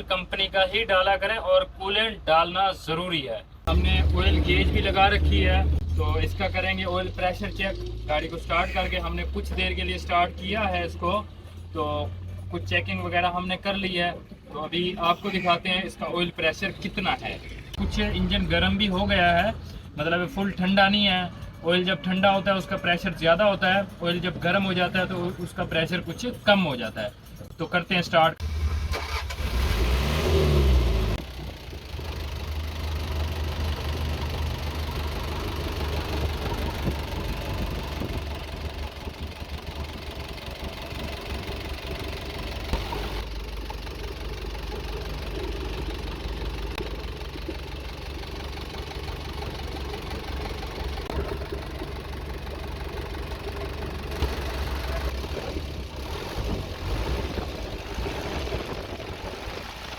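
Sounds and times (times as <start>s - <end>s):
diesel truck engine idling: 3.4s - 12.4s, 13.1s - 21.5s, 30.2s - 59.9s.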